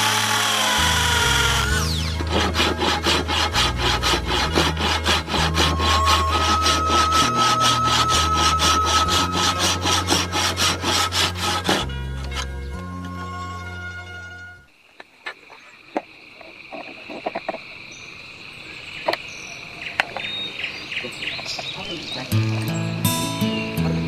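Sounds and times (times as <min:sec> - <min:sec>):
hand saw cutting wood: 0:00.0 - 0:12.6
whirring falling in pitch: 0:05.4 - 0:10.1
background music: 0:22.3 - 0:24.0.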